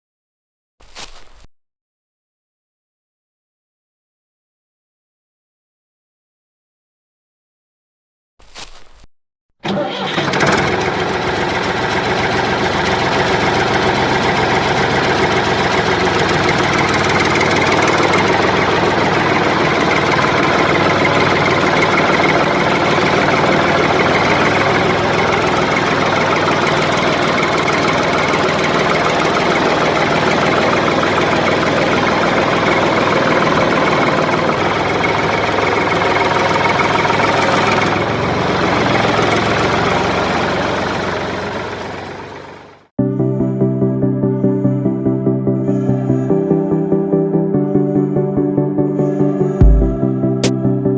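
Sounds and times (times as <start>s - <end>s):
engine running steadily: 9.7s - 42.8s.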